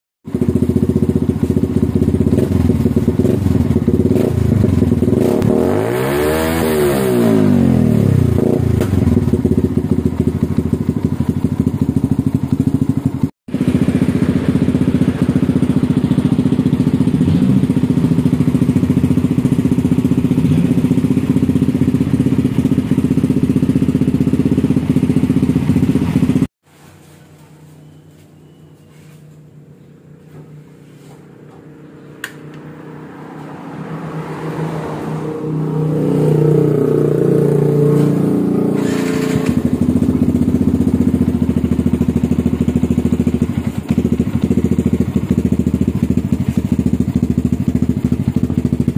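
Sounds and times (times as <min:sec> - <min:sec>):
motorcycle engine idling loudly: 0:00.3 - 0:05.6, 0:07.2 - 0:26.5, 0:36.5 - 0:48.9
motorcycle engine revving: 0:00.3 - 0:26.5, 0:28.4 - 0:48.9.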